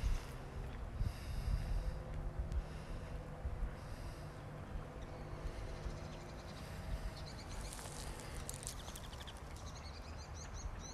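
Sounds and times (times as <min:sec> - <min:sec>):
wind on microphone: 0:00.0 - 0:04.0
birds chirping: 0:00.0 - 0:10.9.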